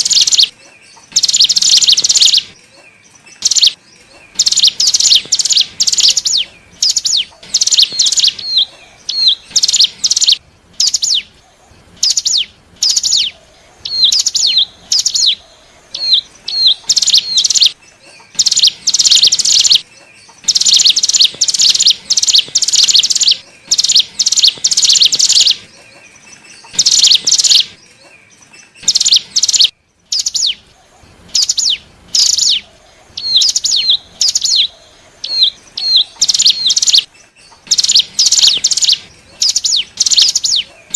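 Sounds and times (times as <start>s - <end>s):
bird singing buzzy chirps: 0.0s - 40.9s.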